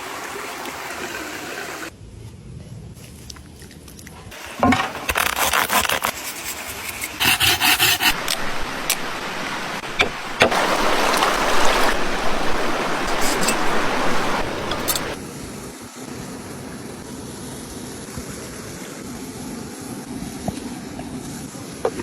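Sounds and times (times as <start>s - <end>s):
scraping on rough surface: 4.5s - 9.1s, 12.9s - 15.2s.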